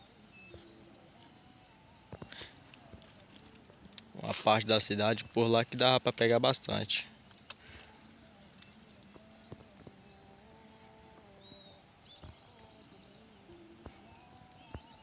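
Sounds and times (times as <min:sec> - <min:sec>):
small birds chirping: 0:00.0 - 0:15.0
soft clicks: 0:12.2 - 0:13.2.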